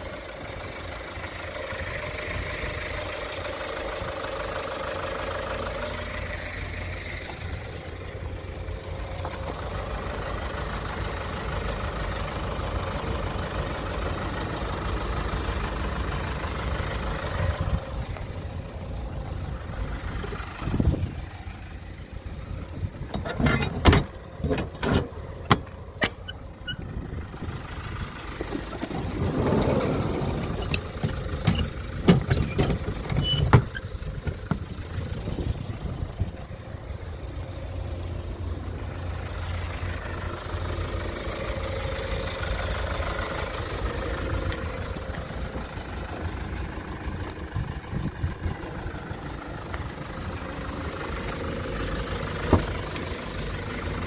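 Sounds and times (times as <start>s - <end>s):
truck engine idling: 0.0s - 54.0s
sharp clicks and clunks: 23.1s - 26.4s, 30.6s - 34.7s.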